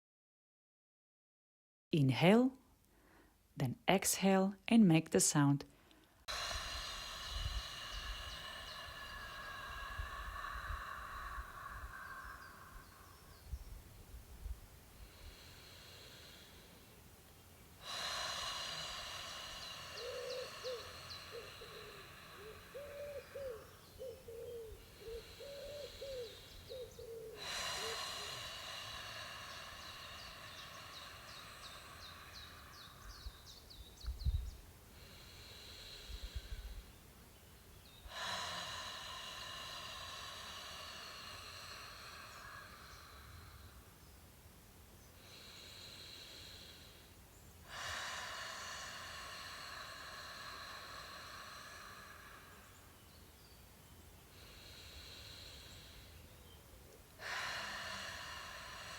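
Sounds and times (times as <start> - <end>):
person exhaling breathy voice: 6.3 - 13.4, 17.8 - 33.5, 38.1 - 43.9, 47.6 - 52.8.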